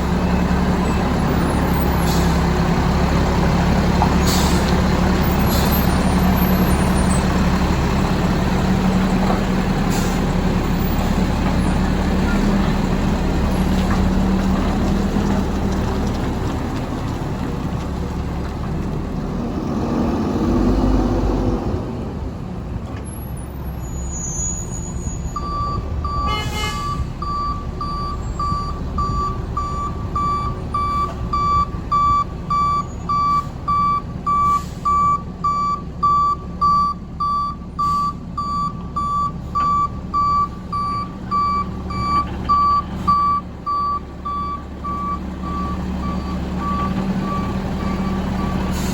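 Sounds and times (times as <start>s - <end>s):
truck engine running: 0.0s - 21.2s.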